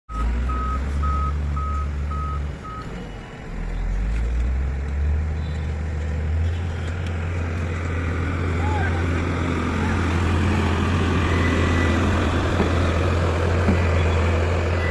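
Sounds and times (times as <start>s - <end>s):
truck engine running: 0.1s - 14.9s
back-up alarm beeping: 0.2s - 2.9s.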